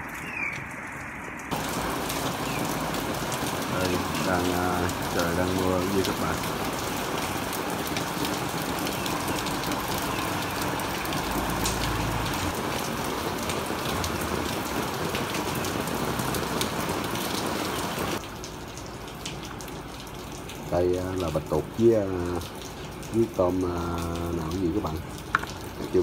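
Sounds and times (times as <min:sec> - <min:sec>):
raindrops ticking close by: 0:00.0 - 0:26.0
steady rain: 0:00.0 - 0:26.0.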